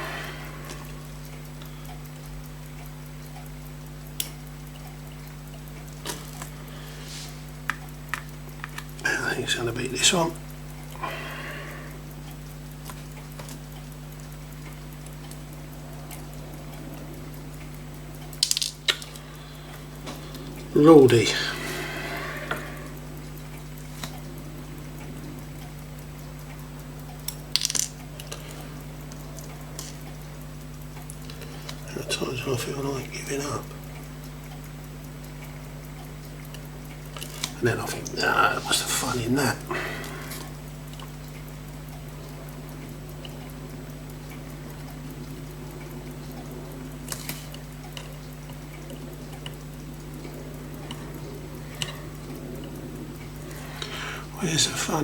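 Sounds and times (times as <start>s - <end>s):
steady low hum: 0.0s - 55.0s
small metal tools clicking: 18.4s - 19.2s, 27.3s - 28.6s.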